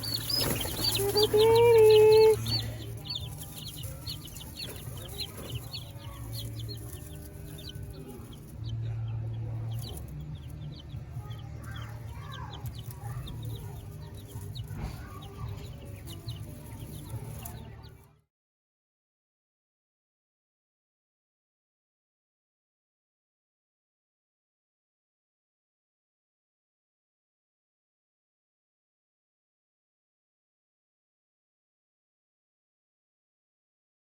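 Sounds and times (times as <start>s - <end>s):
baby chicks peeping: 0.0s - 18.2s.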